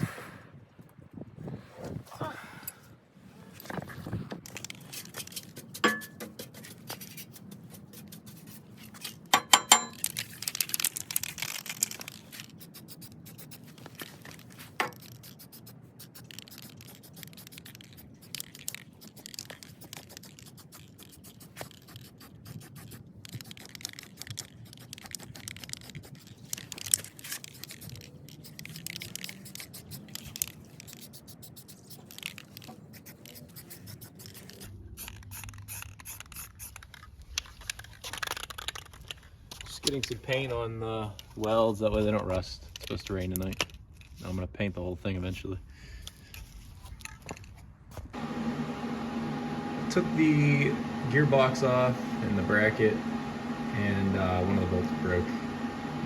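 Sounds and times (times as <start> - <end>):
metallic clinks: 9.3 - 10.2.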